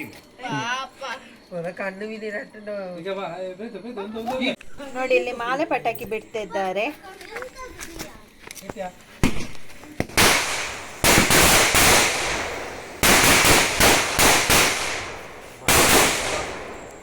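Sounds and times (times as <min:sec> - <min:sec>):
firecrackers crackling: 0:07.8 - 0:17.0.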